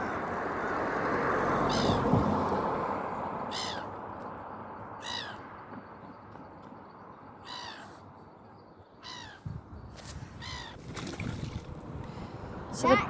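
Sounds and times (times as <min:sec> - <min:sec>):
bird harsh calls: 0:01.7 - 0:02.1, 0:03.5 - 0:03.9, 0:05.0 - 0:05.4, 0:07.4 - 0:08.1, 0:08.9 - 0:09.6, 0:10.3 - 0:10.8.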